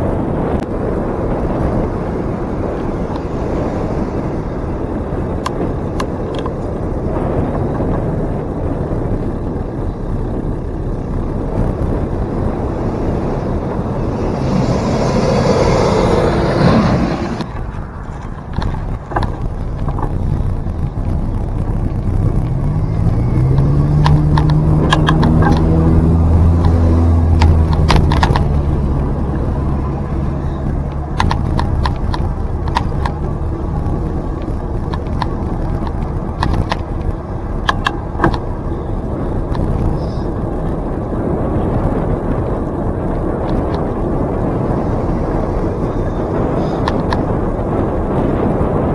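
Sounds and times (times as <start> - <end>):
wind noise on microphone: 0.0 - 48.9
low motor hum: 0.6 - 48.9
sharp clicks and rattles: 17.1 - 48.9.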